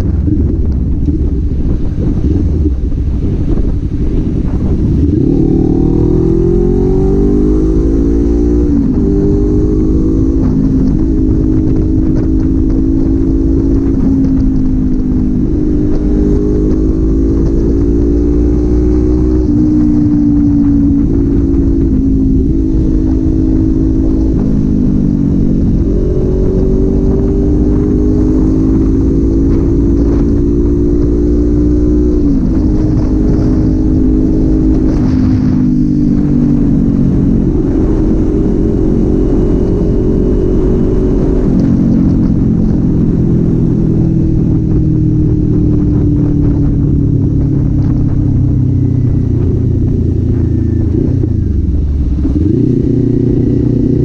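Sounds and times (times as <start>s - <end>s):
low wind rumble: 0.0s - 54.0s
motorcycle engine and exhaust: 0.0s - 54.0s.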